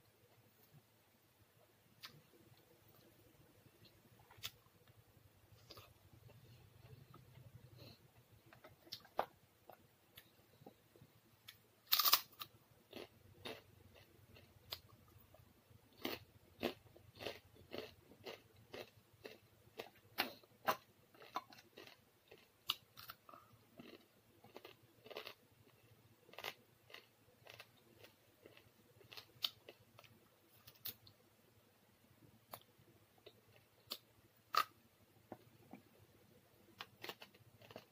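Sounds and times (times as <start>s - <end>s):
chewing crisp fried food: 11.4s - 31.2s, 36.8s - 37.9s.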